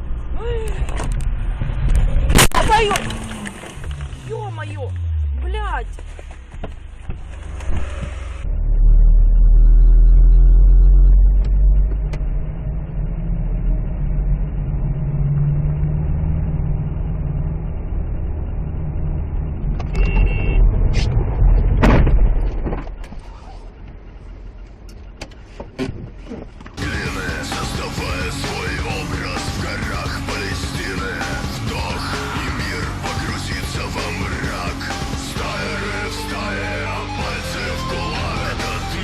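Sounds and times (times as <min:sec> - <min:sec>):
car engine and road noise: 0:00.0 - 0:39.0.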